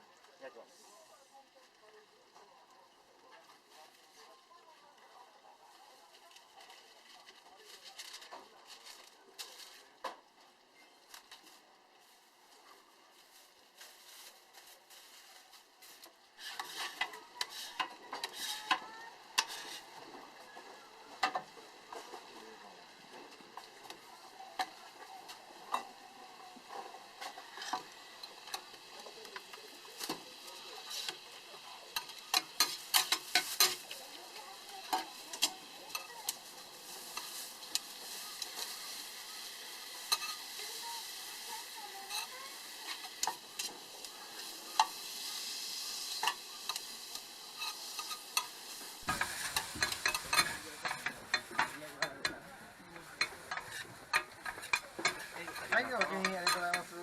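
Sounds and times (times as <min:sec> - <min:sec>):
meat sizzling on a grill: 0:00.0 - 0:57.0
tongs clicking and scraping: 0:16.4 - 0:20.1, 0:31.9 - 0:39.0, 0:39.9 - 0:57.0.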